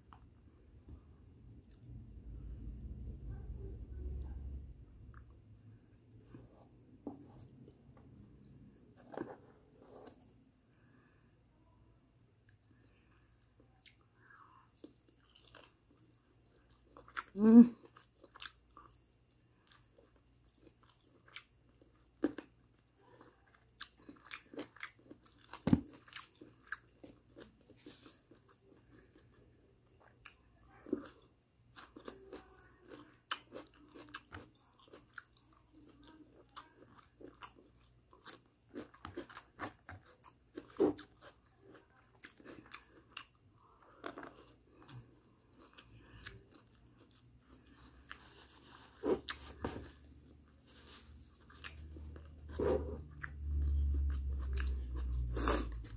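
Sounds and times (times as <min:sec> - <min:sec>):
chewing and biting food: 0:14.7 - 0:55.9.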